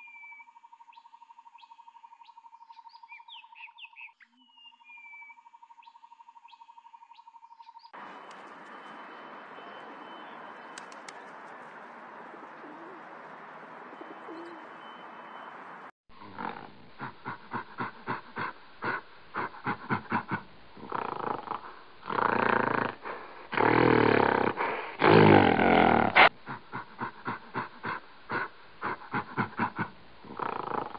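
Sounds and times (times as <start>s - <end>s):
background hiss: 8.0s - 30.9s
gorilla grunting: 16.2s - 30.9s
gorilla low calls: 16.2s - 30.9s.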